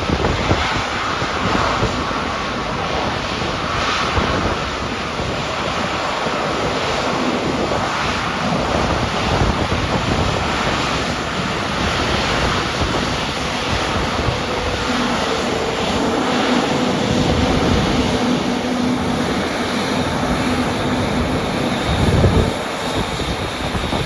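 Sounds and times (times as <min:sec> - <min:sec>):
strong gusty wind: 0:00.0 - 0:24.0.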